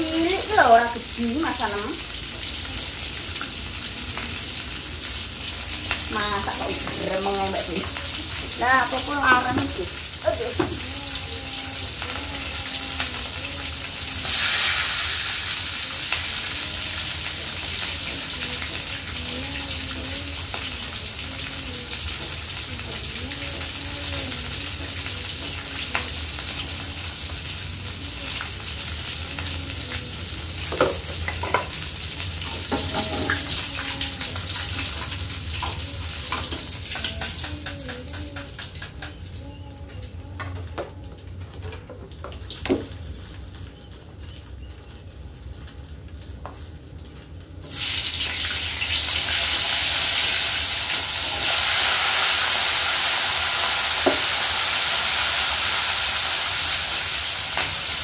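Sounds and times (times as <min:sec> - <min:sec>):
chicken frying in hot oil: 0:00.0 - 0:58.0.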